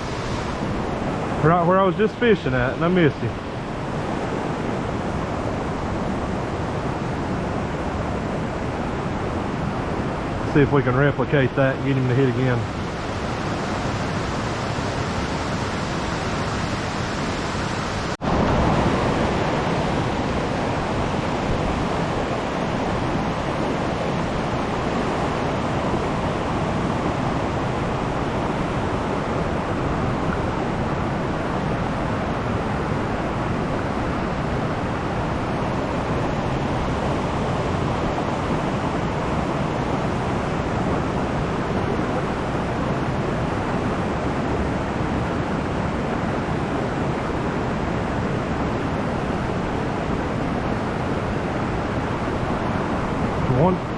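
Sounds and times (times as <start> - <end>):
stream flowing: 0.0 - 53.9.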